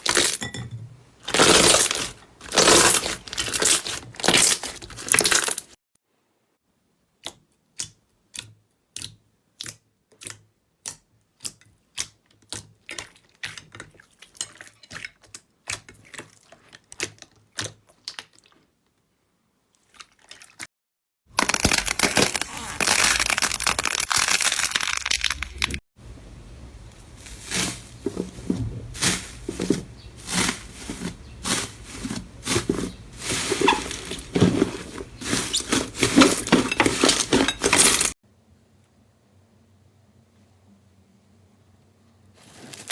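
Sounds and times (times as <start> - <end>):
slime clicking and crackling: 21.4 - 25.7.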